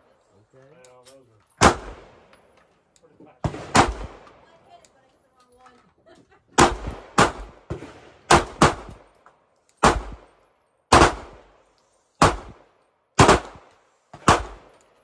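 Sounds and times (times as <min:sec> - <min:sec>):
pistol shots with echo: 0:01.6 - 0:02.2, 0:03.4 - 0:04.4, 0:06.6 - 0:09.1, 0:09.8 - 0:11.5, 0:12.2 - 0:14.8.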